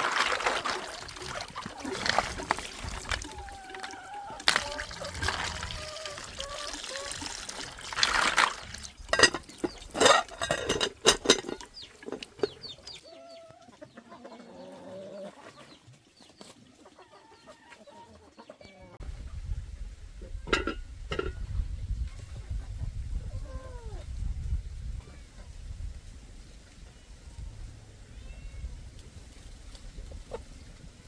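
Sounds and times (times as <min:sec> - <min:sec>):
chickens clucking: 0:00.6 - 0:23.7, 0:29.7 - 0:30.9.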